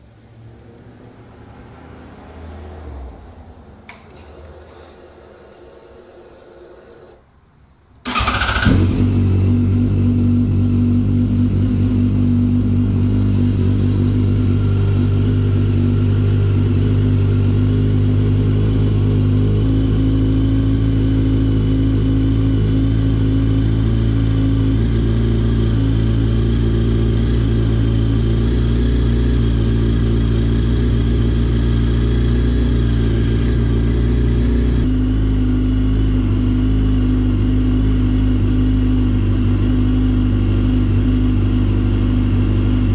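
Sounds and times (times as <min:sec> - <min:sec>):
starter motor cranking: 0:08.1 - 0:09.2
motorcycle engine idling: 0:08.1 - 0:42.9.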